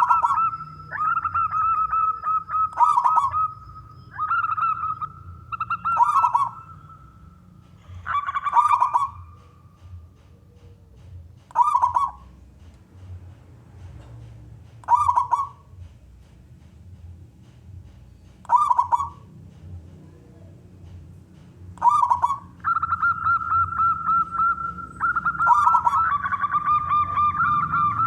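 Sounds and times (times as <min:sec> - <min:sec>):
dove trilling coo: 0:00.0 - 0:12.4, 0:14.8 - 0:15.8, 0:18.5 - 0:19.3, 0:21.7 - 0:28.0.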